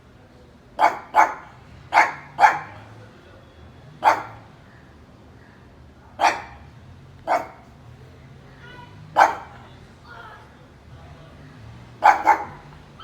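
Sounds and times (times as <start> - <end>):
dog barking: 0.8 - 3.0, 4.0 - 4.5, 6.2 - 7.8, 9.1 - 9.7, 12.0 - 12.8.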